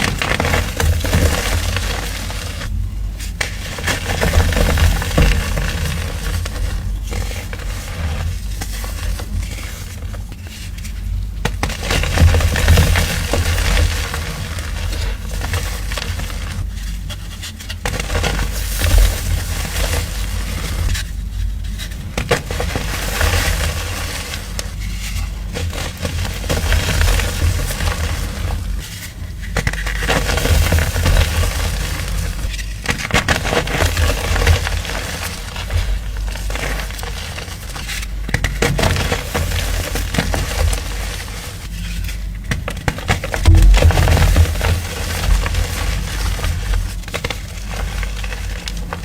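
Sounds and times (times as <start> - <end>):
crunchy material being crushed: 0.0 - 49.0
low handling rumble: 43.4 - 45.9.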